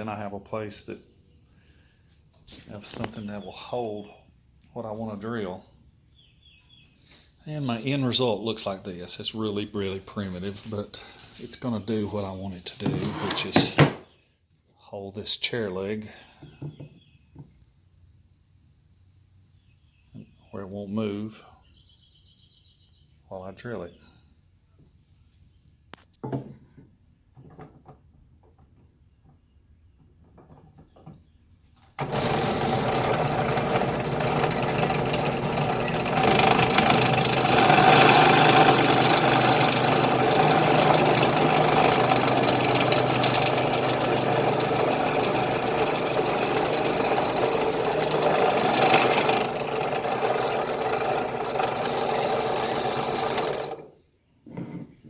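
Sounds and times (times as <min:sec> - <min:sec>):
electric drill running: 0:32.0 - 0:53.9.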